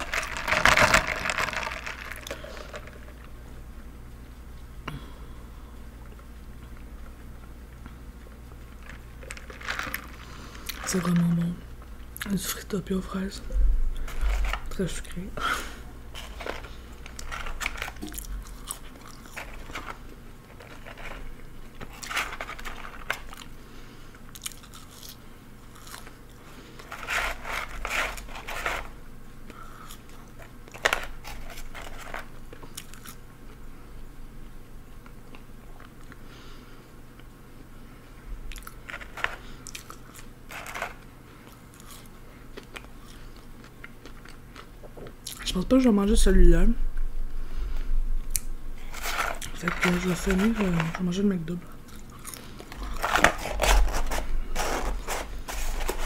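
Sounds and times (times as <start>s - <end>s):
paper packaging crackling: 0.0s - 3.2s, 8.8s - 11.5s, 16.1s - 23.5s, 26.8s - 29.0s, 30.4s - 32.3s, 40.5s - 41.0s, 48.8s - 51.2s, 52.6s - 56.0s
biting and crunching food: 0.0s - 3.4s, 6.0s - 12.4s, 16.1s - 33.2s, 38.5s - 45.4s, 48.3s - 51.0s, 51.7s - 56.0s.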